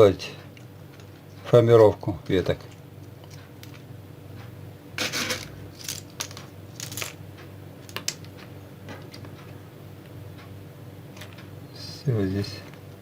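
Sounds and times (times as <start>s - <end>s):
shells and pebbles clicking: 5.8s - 7.2s.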